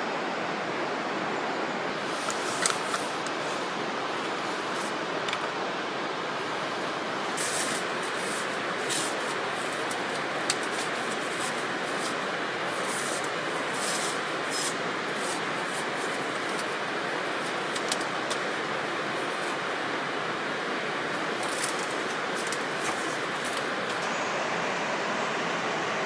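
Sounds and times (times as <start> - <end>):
steady rushing noise: 0.0 - 26.0
wood fire crackling and popping: 7.2 - 24.0
short hissing spurts: 7.3 - 19.8.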